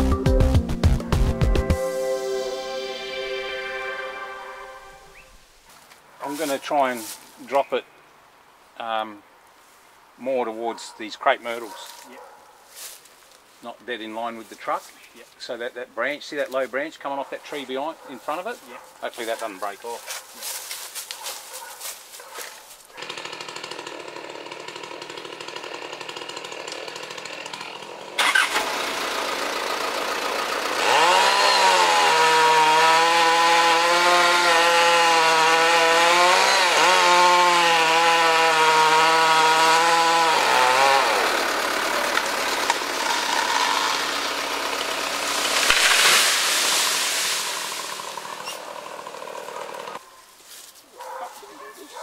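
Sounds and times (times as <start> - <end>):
chainsaw revving and cutting: 22.8 - 50.0.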